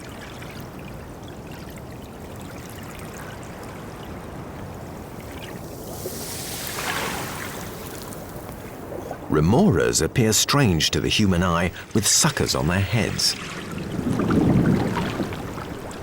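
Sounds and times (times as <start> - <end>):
underwater water rushing: 11.2 - 16.0.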